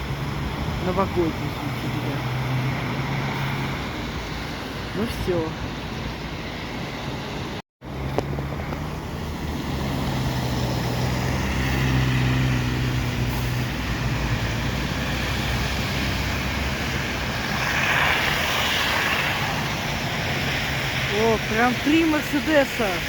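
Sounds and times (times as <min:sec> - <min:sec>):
bus engine humming: 0:00.0 - 0:17.9
street traffic: 0:00.0 - 0:23.0.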